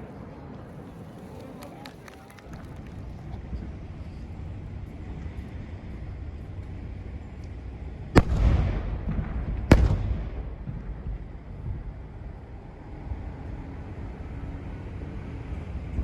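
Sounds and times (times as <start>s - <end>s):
low rumble: 3.0s - 16.0s
firework shells bursting: 8.2s - 12.1s
echoing crackle: 8.2s - 12.2s.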